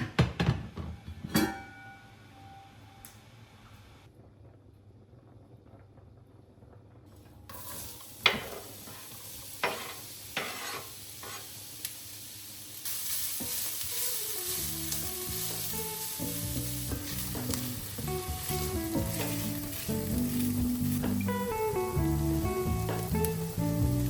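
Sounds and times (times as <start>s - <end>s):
food sizzling in a frying pan: 7.4s - 24.0s
soft background music: 13.5s - 24.0s.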